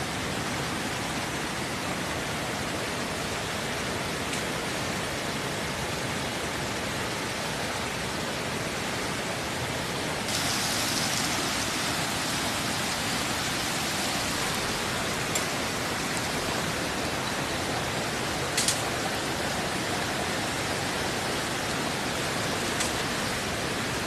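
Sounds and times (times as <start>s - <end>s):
rushing water: 0.0s - 24.0s
bright hiss: 10.3s - 17.4s.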